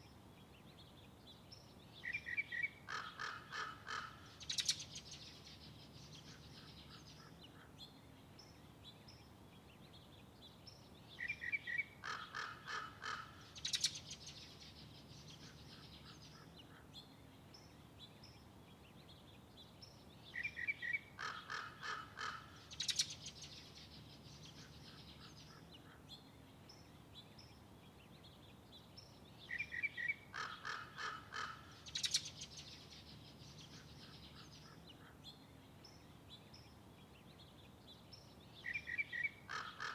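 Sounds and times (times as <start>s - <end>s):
faint background noise: 0.0s - 39.9s
birds calling: 2.0s - 7.8s, 11.2s - 17.0s, 20.3s - 26.8s, 29.4s - 36.7s, 38.6s - 39.9s.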